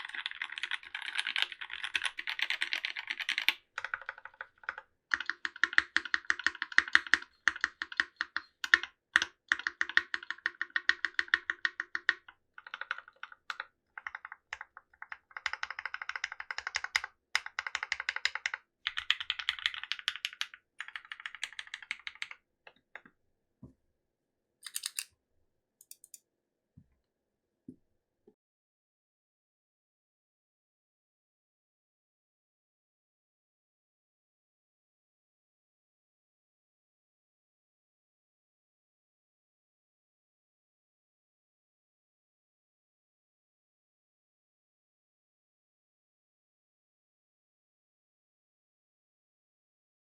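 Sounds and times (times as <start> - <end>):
mechanical keyboard typing: 0.0 - 22.4, 24.6 - 25.1, 25.8 - 26.2.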